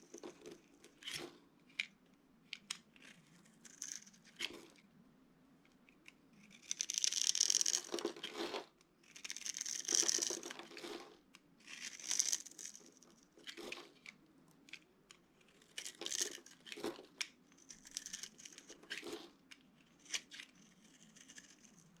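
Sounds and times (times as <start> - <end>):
dry soap crackling and crumbling: 6.3 - 14.1, 15.3 - 22.0.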